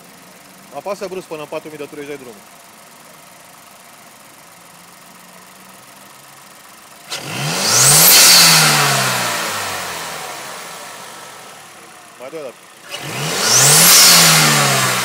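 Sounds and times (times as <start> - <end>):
car engine revving from idle: 3.5 - 15.0.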